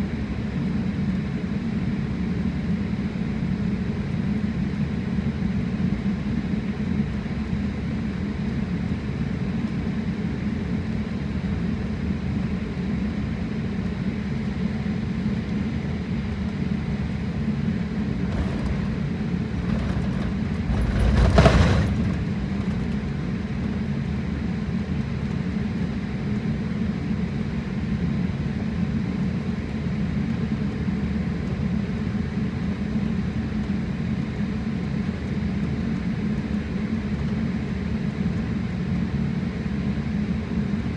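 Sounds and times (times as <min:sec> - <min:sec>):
jet engine roar in cabin: 0:15.4 - 0:25.9.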